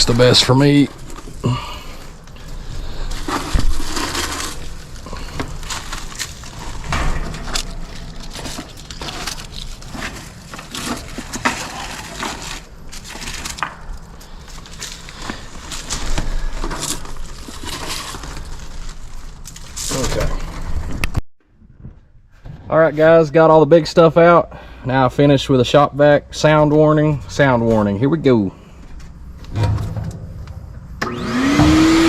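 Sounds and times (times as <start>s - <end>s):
dry debris crackling and crunching: 0.0s - 21.2s, 28.7s - 31.3s.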